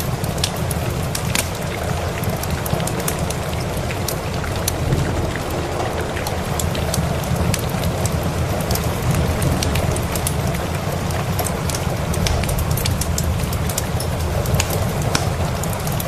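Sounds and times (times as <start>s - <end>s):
steady rain: 0.0s - 16.0s
wood fire crackling: 0.0s - 16.0s
low rumble: 1.7s - 13.6s.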